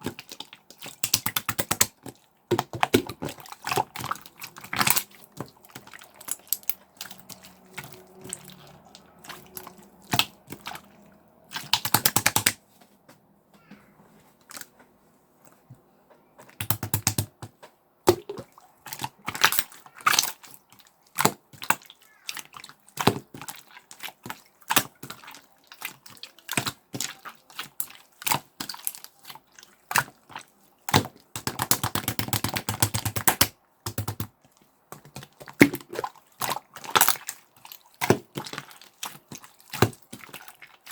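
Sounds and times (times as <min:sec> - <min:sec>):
slime popping and crackling: 0:00.0 - 0:12.6, 0:16.6 - 0:17.4, 0:18.1 - 0:20.5, 0:29.9 - 0:34.3.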